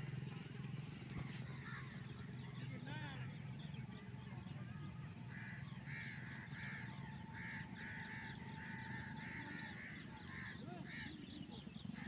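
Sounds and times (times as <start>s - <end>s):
bird calling: 0.0s - 12.0s.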